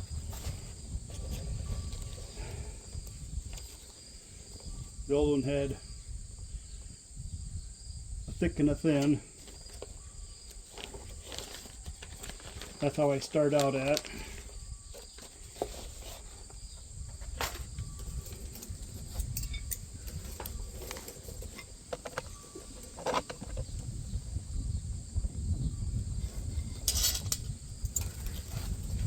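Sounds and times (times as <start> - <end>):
metal parts and tools clicking: 18.1 - 23.6, 26.7 - 28.5.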